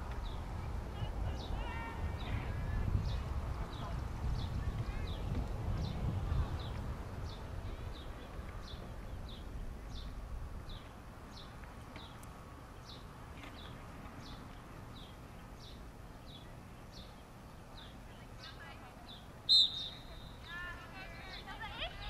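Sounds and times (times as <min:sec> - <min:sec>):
bird chirping: 0:06.6 - 0:20.7.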